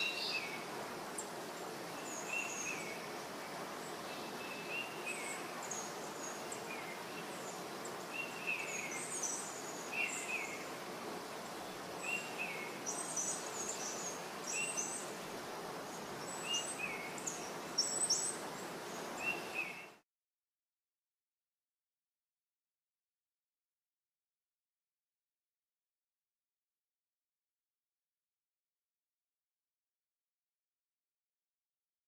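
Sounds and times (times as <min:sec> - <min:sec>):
background hiss: 0:00.0 - 0:20.0
small birds chirping: 0:00.0 - 0:20.0.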